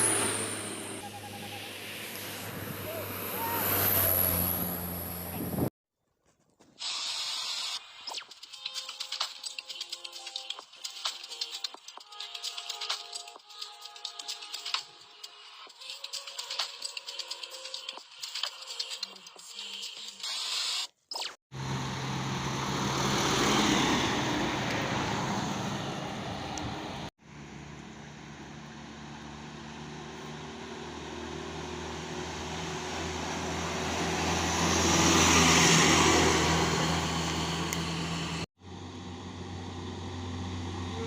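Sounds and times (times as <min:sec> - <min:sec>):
heavy trucks driving past: 0:00.0 - 0:05.7, 0:21.6 - 0:41.0.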